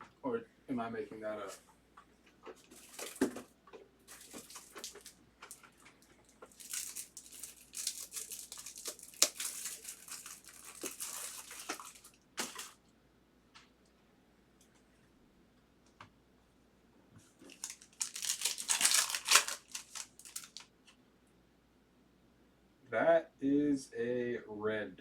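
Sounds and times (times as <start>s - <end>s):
foil wrapper tearing and crinkling: 4.1s - 5.7s, 6.4s - 12.8s, 17.4s - 20.7s.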